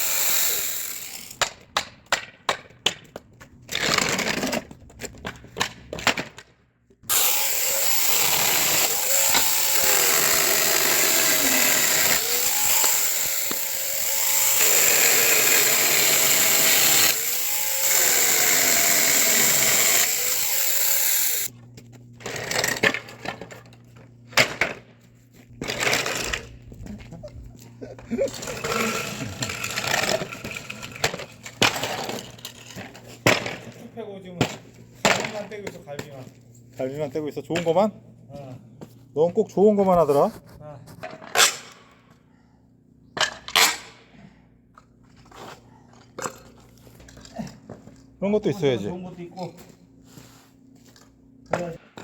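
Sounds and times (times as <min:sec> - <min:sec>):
chainsaw cutting wood: 0:00.0 - 0:01.6, 0:07.1 - 0:21.5, 0:28.3 - 0:32.4.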